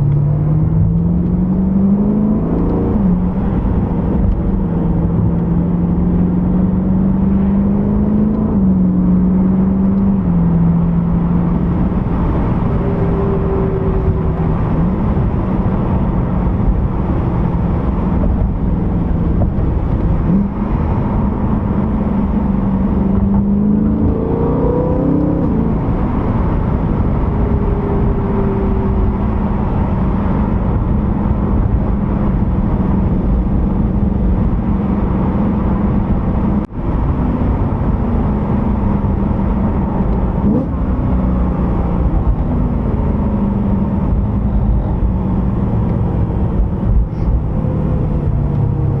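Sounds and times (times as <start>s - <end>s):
car engine drone: 0.0s - 49.0s
road noise: 0.0s - 49.0s.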